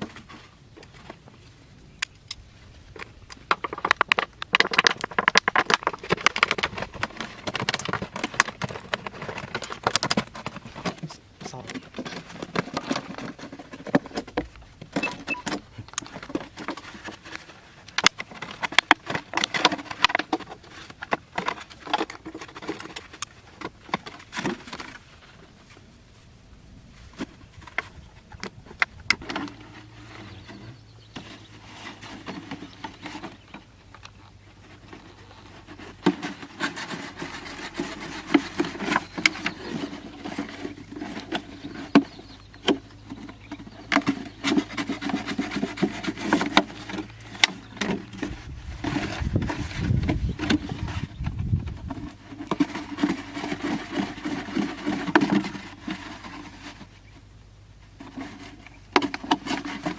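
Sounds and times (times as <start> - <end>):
sharp clicks and knocks: 2.0 - 25.0
hand tool scraping material: 34.4 - 57.1, 57.9 - 59.9.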